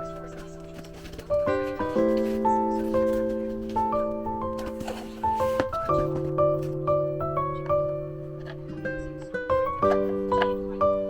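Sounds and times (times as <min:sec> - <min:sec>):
melody of held notes: 0:00.0 - 0:11.0.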